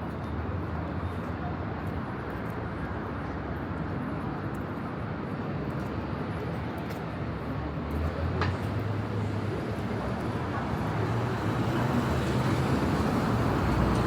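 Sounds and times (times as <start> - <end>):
city road traffic rumble: 0.0 - 14.0.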